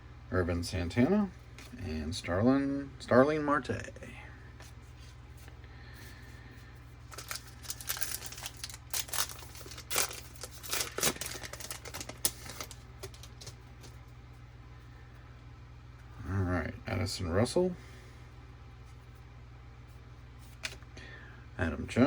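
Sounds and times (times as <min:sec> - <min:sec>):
low steady hum: 0:00.0 - 0:22.0
wrapper tearing and crinkling: 0:07.1 - 0:13.6.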